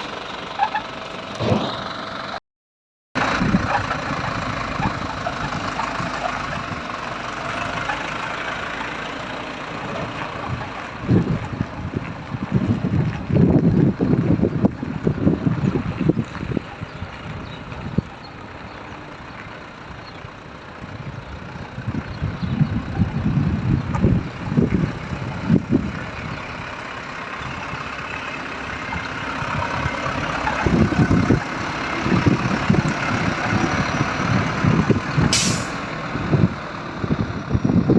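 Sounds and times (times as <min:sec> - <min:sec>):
truck diesel engine running: 0:00.0 - 0:02.4, 0:03.2 - 0:37.9
wind buffeting microphone: 0:03.2 - 0:08.0, 0:09.7 - 0:37.9
short sharp air hiss: 0:35.3 - 0:35.9.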